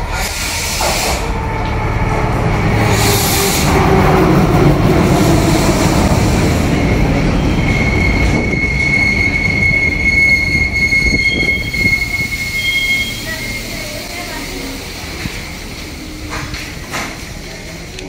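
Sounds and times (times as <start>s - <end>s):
train carriages rumbling: 0.0s - 18.0s
high brake squeal: 6.4s - 14.0s.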